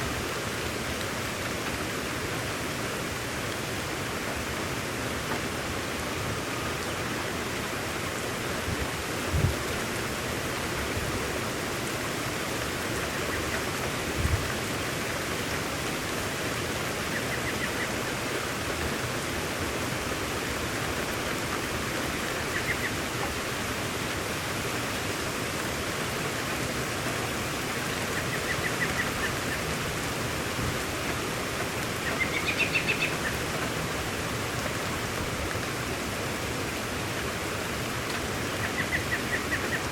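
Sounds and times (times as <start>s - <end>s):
steady rain falling: 0.0s - 39.9s
short low thumps: 8.6s - 9.8s, 14.2s - 14.6s
bird chirping: 32.0s - 33.4s.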